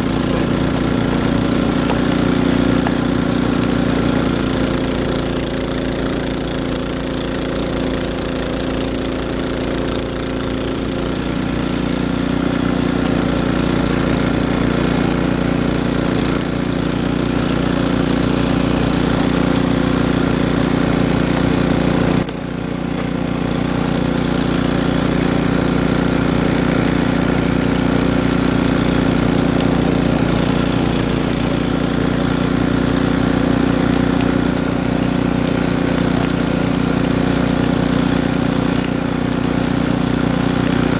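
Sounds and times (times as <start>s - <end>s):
snowblower engine running: 0.0s - 40.9s.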